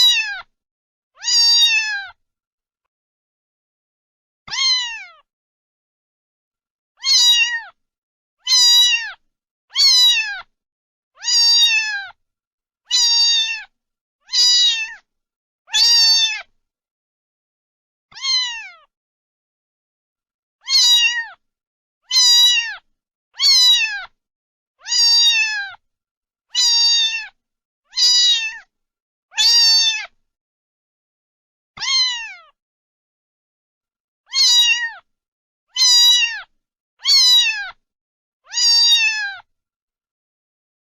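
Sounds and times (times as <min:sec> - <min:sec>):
cat meowing: 0:00.0 - 0:00.5, 0:01.2 - 0:02.2, 0:04.5 - 0:05.3, 0:07.0 - 0:07.8, 0:08.4 - 0:10.5, 0:11.2 - 0:12.2, 0:12.9 - 0:13.7, 0:14.3 - 0:15.0, 0:15.7 - 0:16.5, 0:18.1 - 0:18.9, 0:20.6 - 0:21.4, 0:22.1 - 0:24.2, 0:24.8 - 0:25.8, 0:26.5 - 0:28.7, 0:29.3 - 0:30.2, 0:31.8 - 0:32.6, 0:34.3 - 0:35.1, 0:35.7 - 0:37.8, 0:38.5 - 0:39.5.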